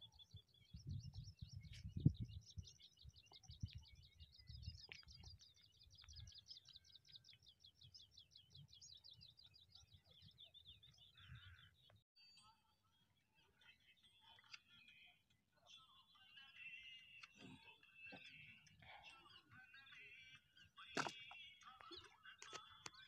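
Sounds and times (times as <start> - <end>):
low wind rumble: 0.6 - 4.7.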